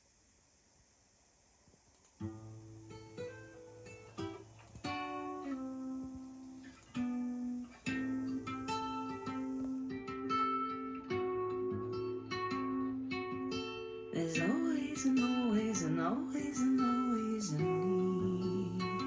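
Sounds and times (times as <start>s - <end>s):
acoustic guitar chords over loudspeakers: 7.8s - 19.0s.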